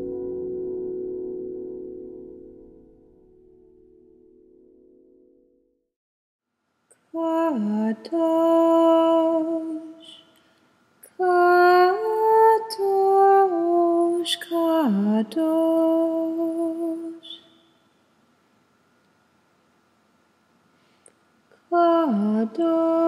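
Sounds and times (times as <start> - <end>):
woman singing wordless held notes: 7.0 - 10.4, 11.0 - 17.6, 21.5 - 23.0.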